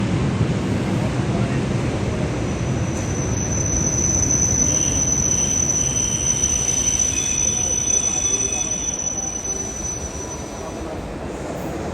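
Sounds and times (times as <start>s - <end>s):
train rumbling past: 0.0s - 11.9s
high steady squeal: 1.4s - 11.1s.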